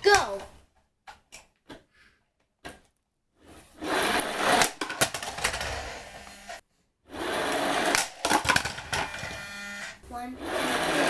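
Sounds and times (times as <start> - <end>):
toy truck rolling across floor: 3.4 - 11.0
toy wheels knocking and clattering: 4.0 - 6.3, 7.4 - 9.5.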